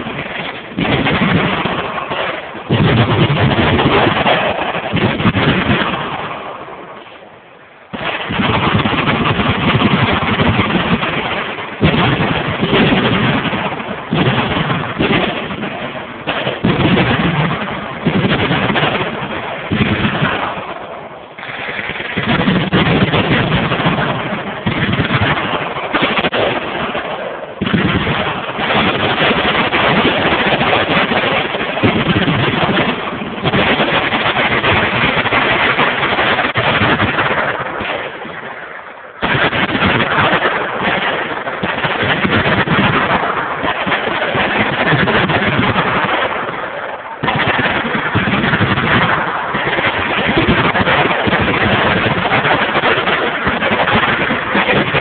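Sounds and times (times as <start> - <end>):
machine guns firing: 0.0 - 6.8, 7.9 - 38.6, 39.2 - 55.0.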